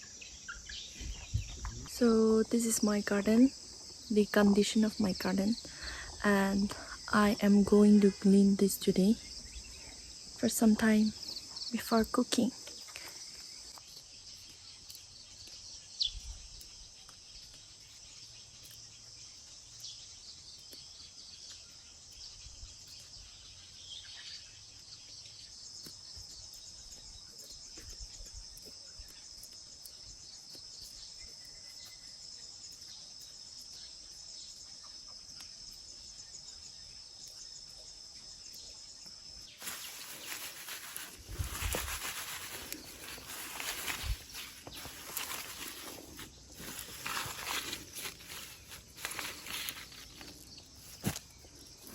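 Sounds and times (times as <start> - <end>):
bird chirp: 0.0 - 2.0, 11.0 - 51.9
insects chirping: 0.0 - 51.9
rustling: 39.5 - 51.9.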